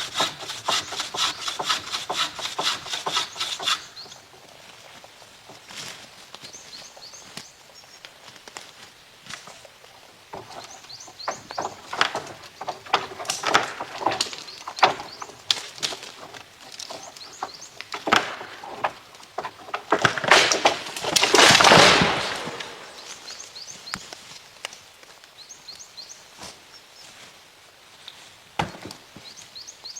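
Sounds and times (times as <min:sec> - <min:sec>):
crunching and rustling in dry leaves: 0:03.9 - 0:29.6
bird chirps: 0:16.9 - 0:17.8.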